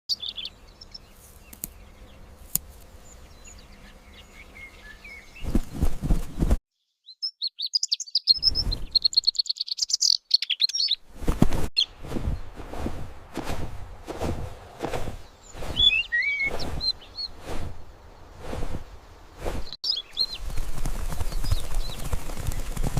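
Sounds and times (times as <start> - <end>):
bird chirping: 0.1 - 5.9, 6.7 - 11.0, 15.2 - 22.9.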